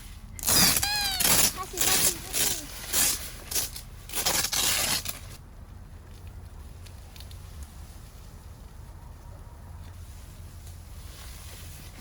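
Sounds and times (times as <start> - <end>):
tent fabric rustling: 10.0 - 12.0.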